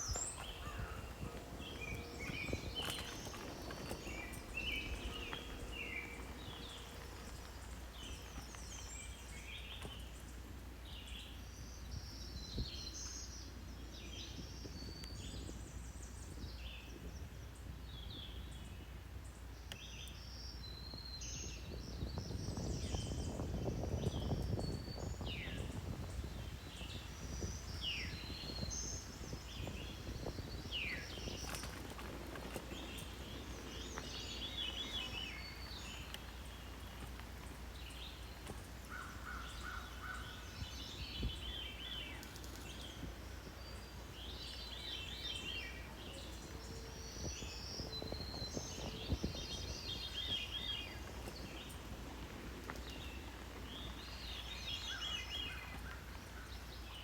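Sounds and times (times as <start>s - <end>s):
steady low rumble: 0.0s - 10.2s
songbirds singing: 0.0s - 57.0s.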